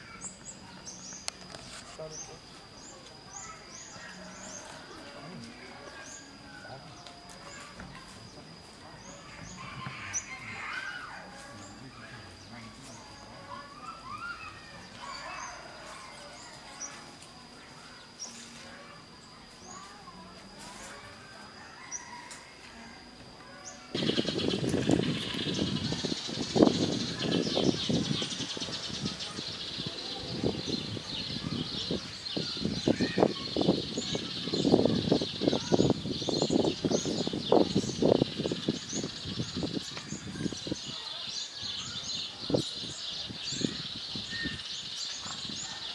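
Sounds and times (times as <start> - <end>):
birds calling with low notes: 0.0 - 45.9
songbirds warbling: 0.0 - 45.9
thin steady high tone: 0.0 - 45.9
sharp high bird chirps: 23.7 - 45.7.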